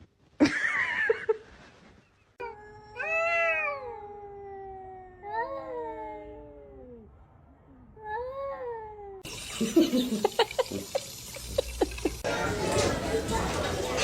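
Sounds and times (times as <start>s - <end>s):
cat meows: 2.4s - 7.1s
cat yowling: 2.4s - 7.1s.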